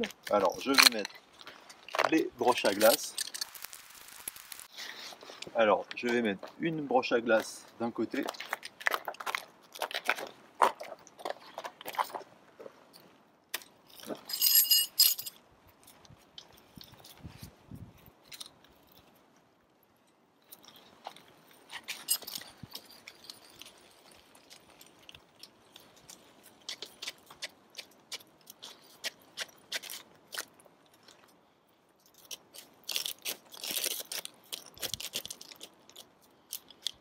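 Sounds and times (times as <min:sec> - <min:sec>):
ice screw crunching into ice: 0:23.6 - 0:30.6, 0:32.1 - 0:37.0.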